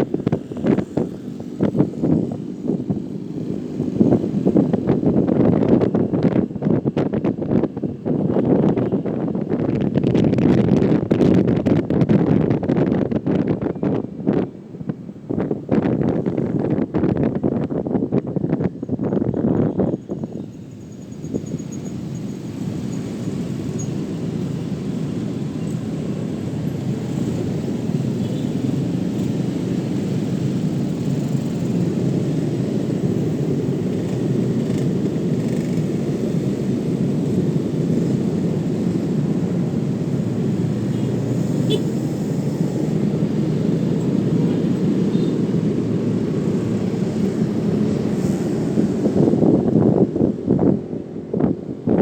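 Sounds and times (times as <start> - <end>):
wind and road noise rumble: 0.0 - 52.0.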